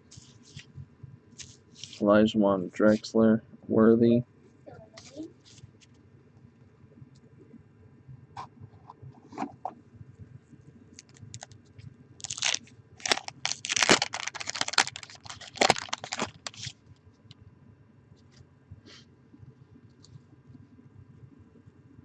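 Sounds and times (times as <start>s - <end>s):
cards shuffling and rustling: 1.4s - 2.0s, 12.2s - 16.7s.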